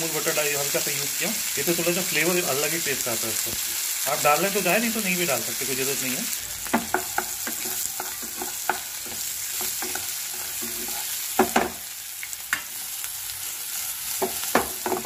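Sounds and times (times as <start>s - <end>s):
vegetables sizzling in oil: 0.0s - 15.0s
spatula scraping and knocking pan: 6.6s - 11.8s, 14.2s - 15.0s.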